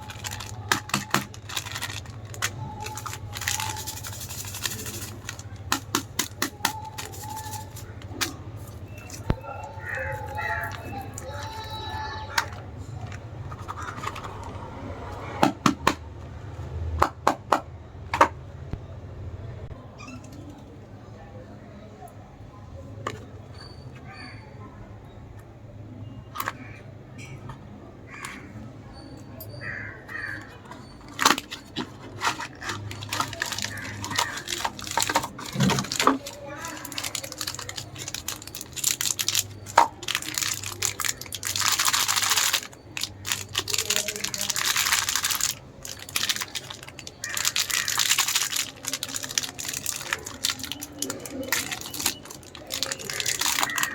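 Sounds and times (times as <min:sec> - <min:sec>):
packets clicking and tapping: 0:00.0 - 0:14.5, 0:30.6 - 0:53.9.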